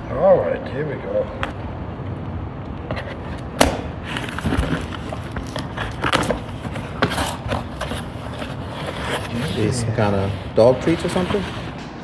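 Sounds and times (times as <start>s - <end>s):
cardboard box rustling and scraping: 3.0s - 11.9s
sharp knock: 3.6s - 3.9s.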